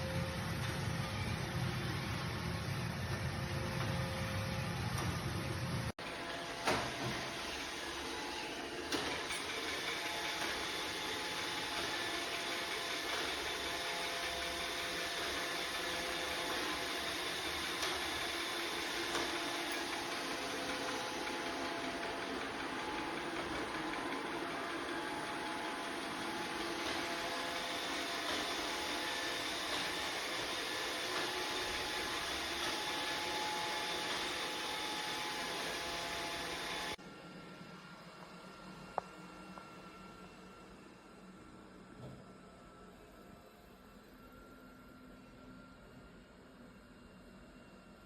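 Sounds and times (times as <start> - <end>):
robot vacuum whirring: 6.0 - 37.4.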